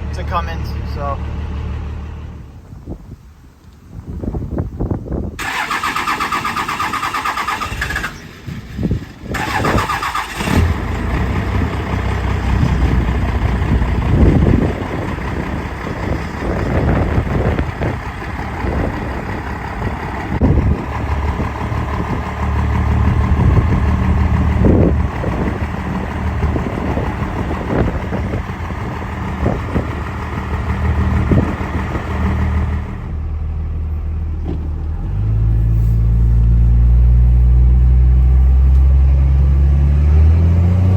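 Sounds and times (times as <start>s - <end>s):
diesel engine idling: 0.0s - 2.8s, 5.4s - 39.6s
starter cranking diesel engine: 5.4s - 33.4s.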